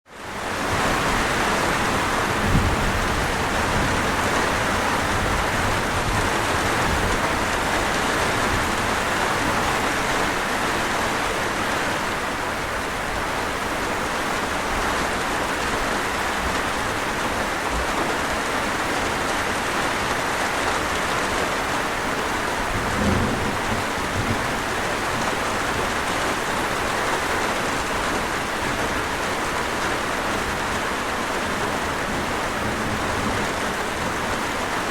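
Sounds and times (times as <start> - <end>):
steady rain hiss: 0.1 - 34.9.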